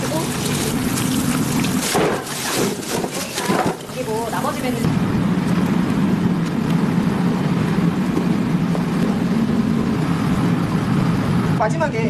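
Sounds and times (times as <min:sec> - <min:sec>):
steady low rumble: 0:03.9 - 0:12.0.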